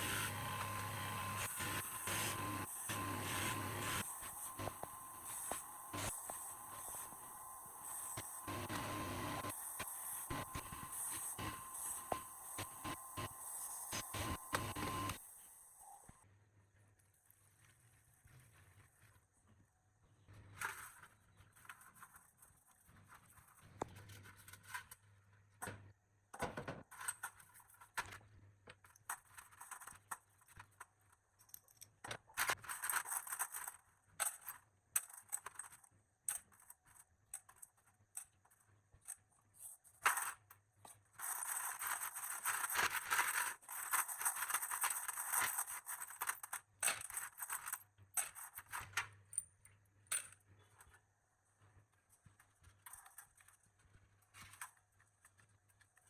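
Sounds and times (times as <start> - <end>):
scraping or brushing: 0.0 - 15.2
small metal parts clinking: 28.8 - 39.2, 40.0 - 51.0.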